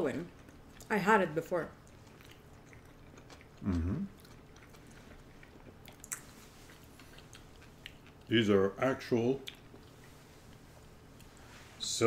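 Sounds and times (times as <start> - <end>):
person chewing: 0.3 - 0.9, 1.8 - 8.3, 9.4 - 11.5
person humming mm-hmm: 3.6 - 4.1.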